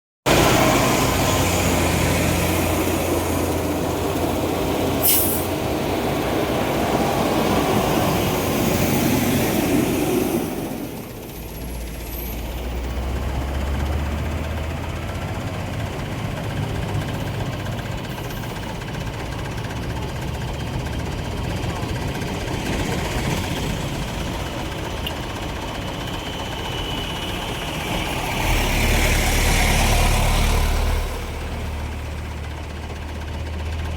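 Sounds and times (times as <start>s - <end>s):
heavy truck engines running: 0.3s - 33.9s
road traffic noise: 0.3s - 33.9s
brief hiss: 5.0s - 5.6s.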